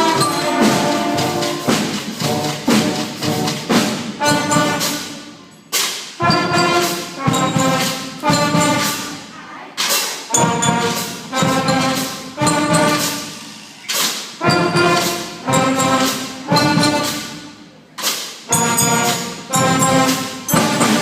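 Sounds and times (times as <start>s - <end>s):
concert band playing chords: 0.0s - 5.3s, 14.4s - 17.4s, 18.5s - 21.0s
drum and cymbal hits: 0.0s - 21.0s.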